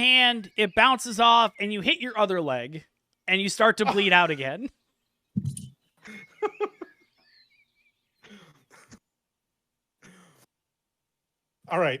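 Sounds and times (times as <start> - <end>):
man murmuring: 3.7 - 4.5.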